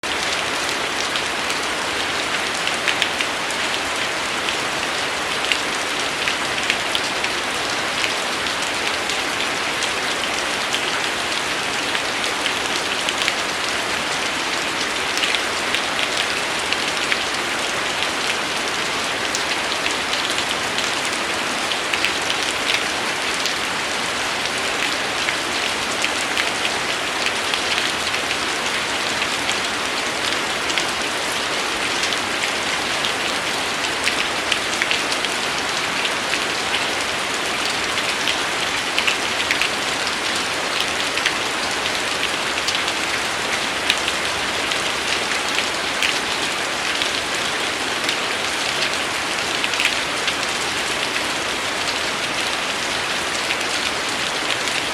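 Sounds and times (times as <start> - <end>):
steady rain hiss: 0.0 - 54.9
raindrops ticking: 14.8 - 16.4, 19.3 - 28.0, 33.0 - 35.2, 38.1 - 47.2, 48.0 - 51.7, 53.1 - 54.8.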